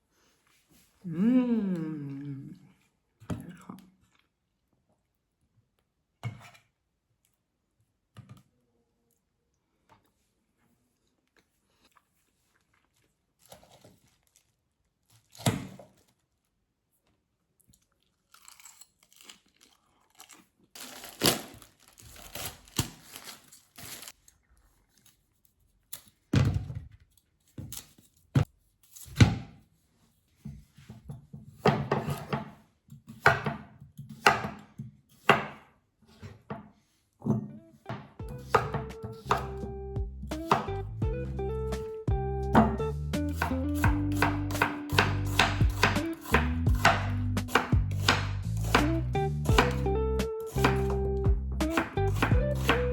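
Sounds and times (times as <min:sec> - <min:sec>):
knife on cutting board: 0:31.5 - 0:35.6, 0:38.4 - 0:39.6, 0:40.4 - 0:40.7, 0:42.6 - 0:48.9, 0:49.5 - 0:49.8, 0:50.4 - 0:51.0, 0:51.6 - 0:52.9
soft music: 0:37.4 - 0:52.9.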